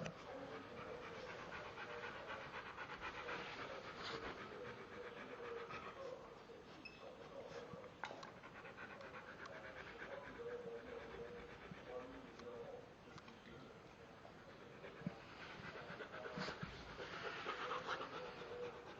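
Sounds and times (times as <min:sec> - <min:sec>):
dog panting: 0:00.0 - 0:18.9.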